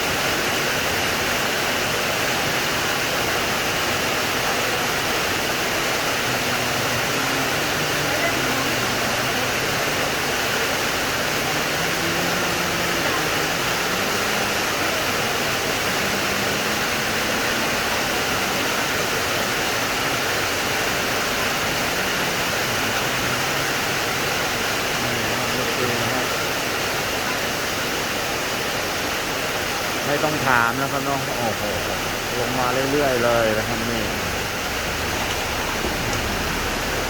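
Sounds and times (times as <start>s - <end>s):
heavy rain pouring: 0.0s - 37.0s.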